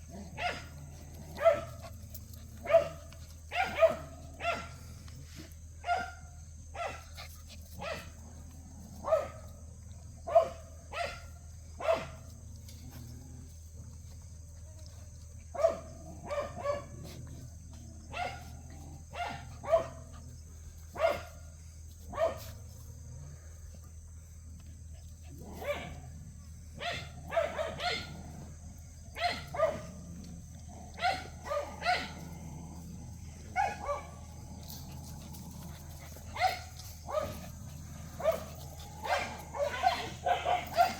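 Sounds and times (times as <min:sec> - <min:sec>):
faint low hum: 0:00.0 - 0:40.9
dog barking high-pitched: 0:03.5 - 0:04.7, 0:26.8 - 0:28.1.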